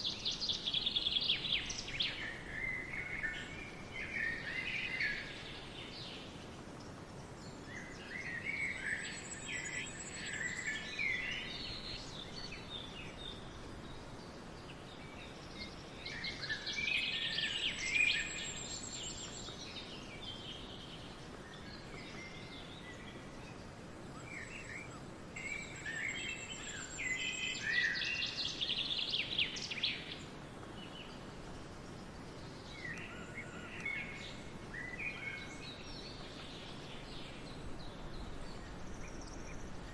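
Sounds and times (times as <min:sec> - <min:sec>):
songbirds chirping and trilling: 0:00.0 - 0:39.9
steady background hiss: 0:00.0 - 0:39.9.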